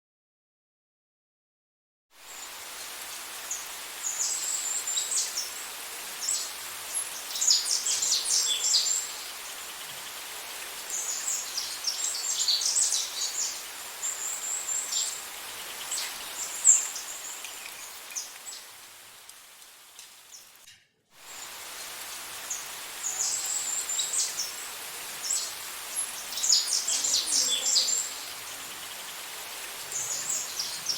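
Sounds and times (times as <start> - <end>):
outdoor background hiss: 2.2 - 30.9
small birds chirping: 2.4 - 20.7, 21.3 - 30.9.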